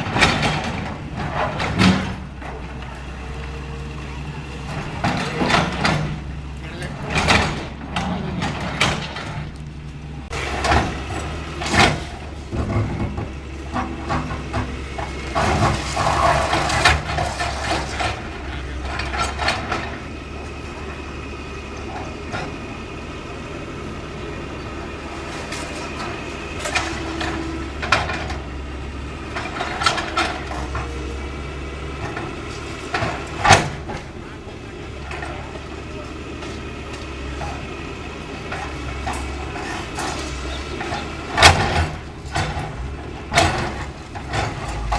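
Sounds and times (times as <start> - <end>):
squealing and scraping: 0.0 - 20.8, 38.4 - 44.9
excavator running: 0.0 - 44.9
debris breaking and crashing: 4.9 - 20.0.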